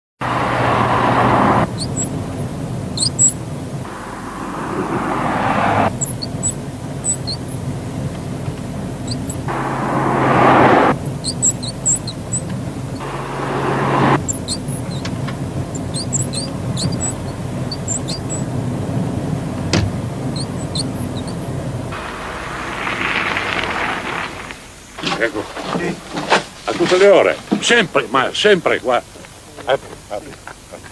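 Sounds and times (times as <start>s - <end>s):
car noise: 0.2s - 30.9s
high-pitched squeak chirps: 0.8s - 2.2s, 3.0s - 7.6s, 9.0s - 18.5s, 20.3s - 21.4s
rushing hiss: 3.8s - 6.7s, 9.4s - 11.8s, 12.9s - 14.5s, 21.9s - 30.3s.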